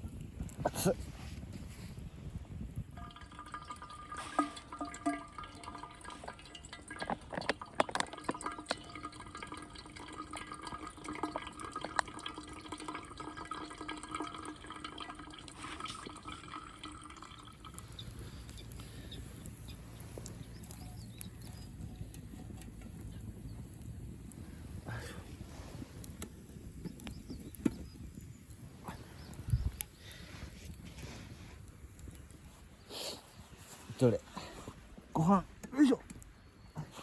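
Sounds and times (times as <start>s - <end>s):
water bubbling in metal tin: 2.7s - 19.6s, 20.4s - 24.4s
faint steady ringing: 2.9s - 18.4s.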